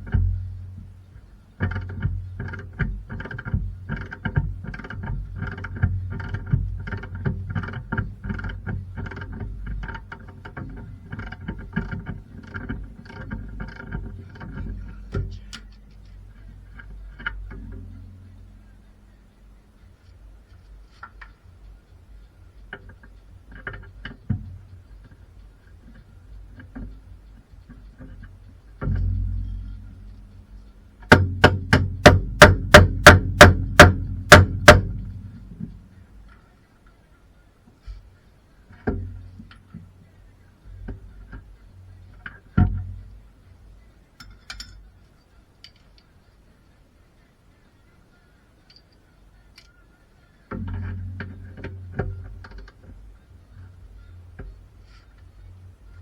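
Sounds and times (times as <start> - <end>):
low background rumble: 0.0 - 56.0
tools knocking and clanking: 27.7 - 35.8, 50.5 - 53.0
heavy thuds: 27.7 - 36.3.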